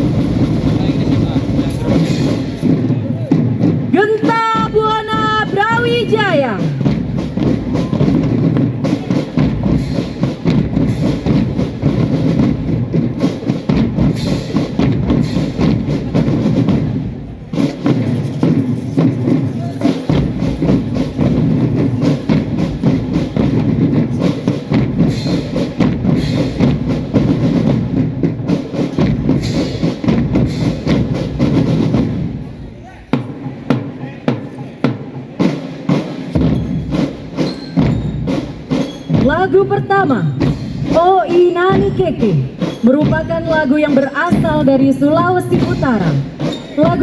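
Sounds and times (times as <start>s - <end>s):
marching drum band: 0.0s - 47.0s.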